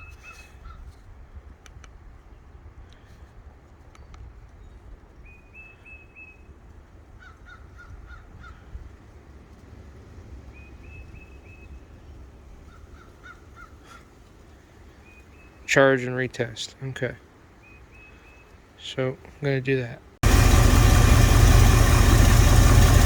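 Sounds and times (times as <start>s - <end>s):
steady low rumble: 20.2s - 23.0s.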